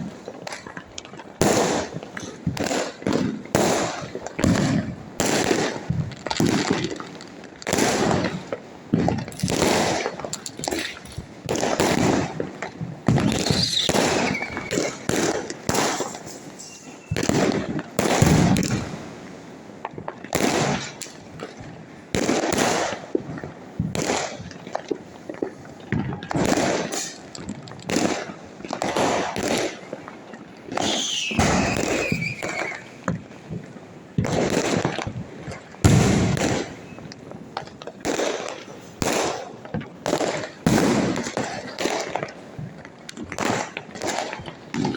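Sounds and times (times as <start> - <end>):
fireworks bangs and crackles: 0.0 - 44.9
falling firework whistles: 13.1 - 18.7, 30.7 - 33.0.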